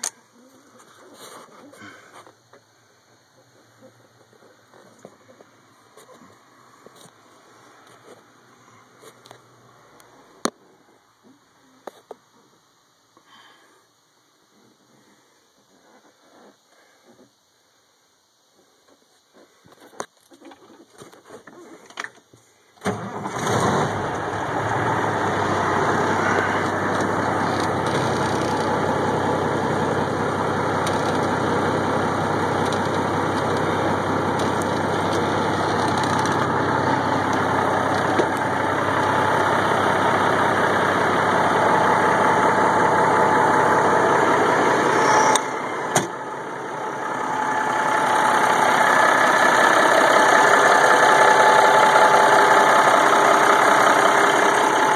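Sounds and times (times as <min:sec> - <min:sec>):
diesel engine starting and running: 0:22.8 - 0:54.9.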